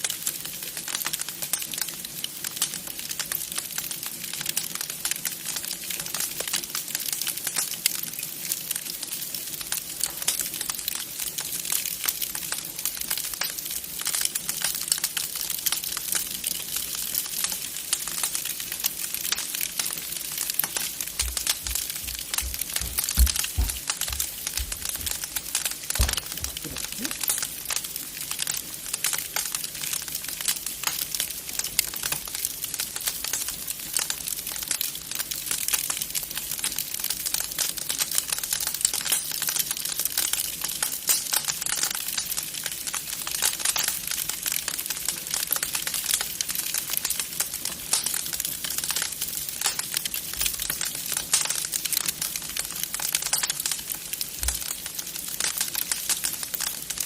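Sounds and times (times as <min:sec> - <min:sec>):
wood fire crackling: 0:00.0 - 0:57.0
low thuds: 0:21.2 - 0:27.0.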